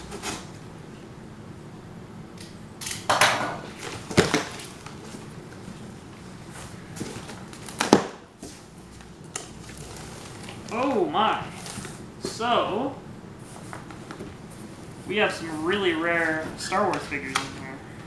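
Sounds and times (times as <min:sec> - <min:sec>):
cardboard rustling and scraping: 0:03.6 - 0:12.4, 0:13.4 - 0:17.1.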